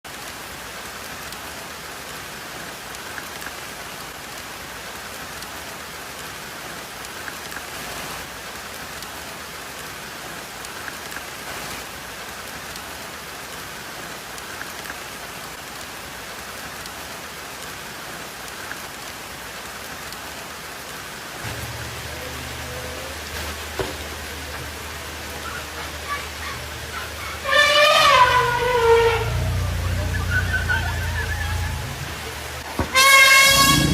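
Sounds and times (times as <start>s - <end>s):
hiss of water: 0.2s - 33.9s
low hum: 21.4s - 32.7s.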